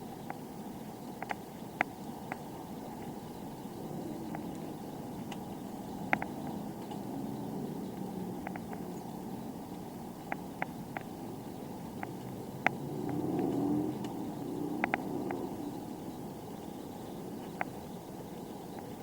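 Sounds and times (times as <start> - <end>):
bicycle tyre and wind rumble: 2.0 - 19.0
bike clicks and ticks: 4.3 - 15.8.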